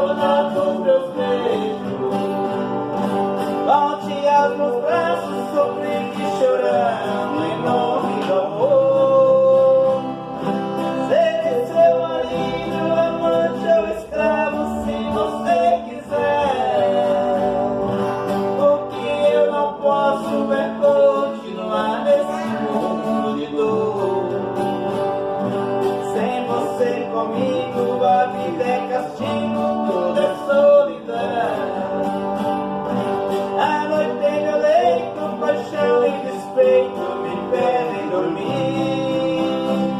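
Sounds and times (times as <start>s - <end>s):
guitar-accompanied song: 0.0s - 39.9s.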